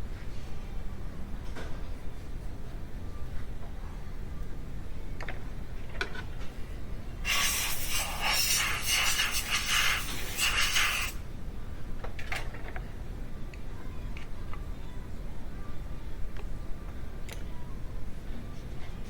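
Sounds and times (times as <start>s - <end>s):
steady hiss: 7.2s - 11.2s.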